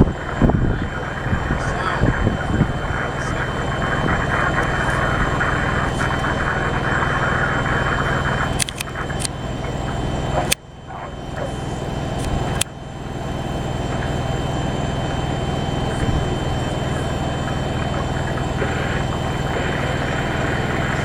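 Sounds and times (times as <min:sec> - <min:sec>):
rocket engines roaring: 0:00.0 - 0:21.0
sharp clicks: 0:08.4 - 0:09.7, 0:12.2 - 0:12.8.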